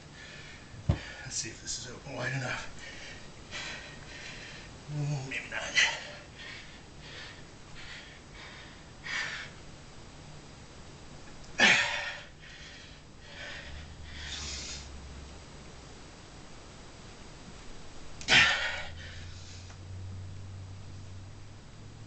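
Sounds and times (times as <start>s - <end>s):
man breathing hard and exhaling: 18.2s - 19.8s.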